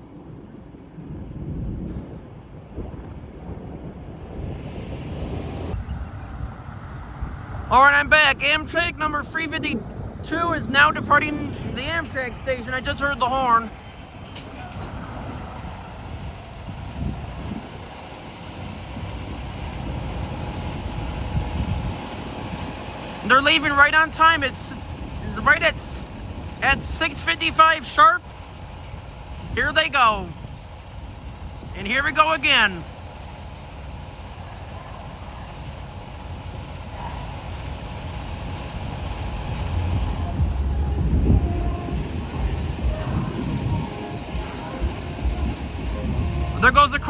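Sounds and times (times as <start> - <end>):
wind on microphone: 0.0 - 7.7, 9.8 - 23.2, 38.8 - 46.7
street traffic rumble: 0.0 - 47.0.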